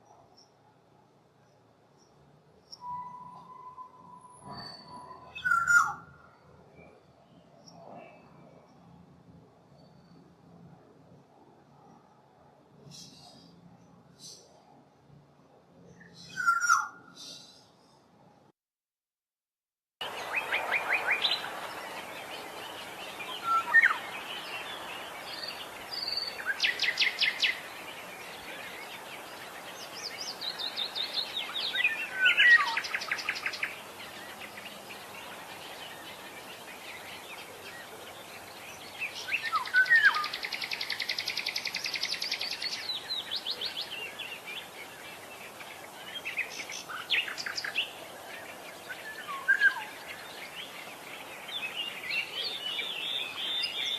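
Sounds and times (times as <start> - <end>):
steady outdoor hiss: 0.0 - 18.5, 20.0 - 53.9
oriole whistling and trilling: 2.8 - 6.0.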